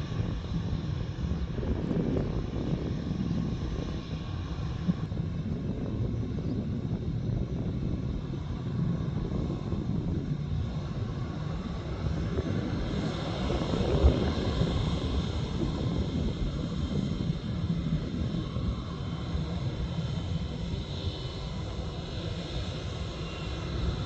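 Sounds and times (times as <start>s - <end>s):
airliner engines rumbling: 0.0s - 24.0s.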